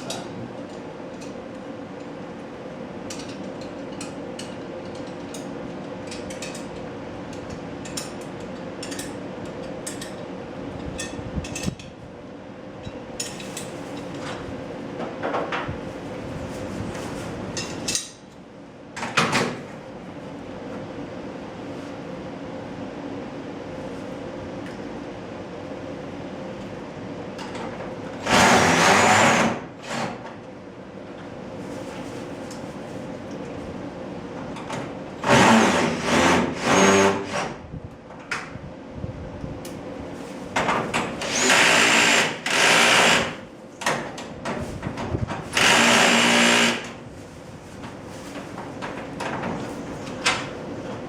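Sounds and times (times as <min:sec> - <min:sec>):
cordless drill driving screws: 0:41.2 - 0:43.4, 0:45.6 - 0:46.9.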